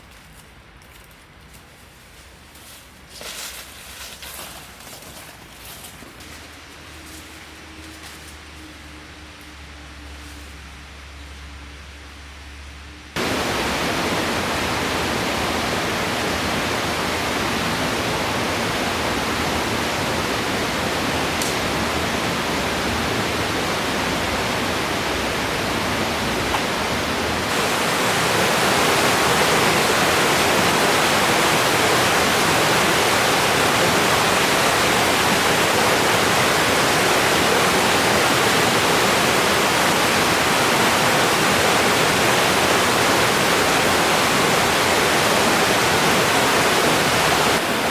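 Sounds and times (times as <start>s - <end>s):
rushing river water: 13.2s - 47.9s.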